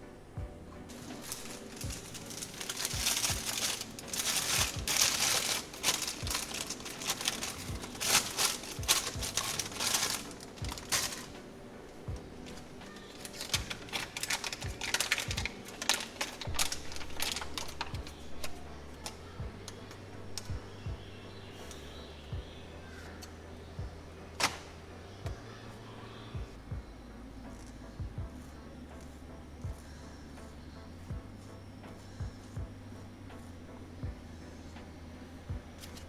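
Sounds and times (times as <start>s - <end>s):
faint background music: 0.0s - 36.0s
crinkling and rustling: 0.9s - 25.5s, 34.0s - 36.0s.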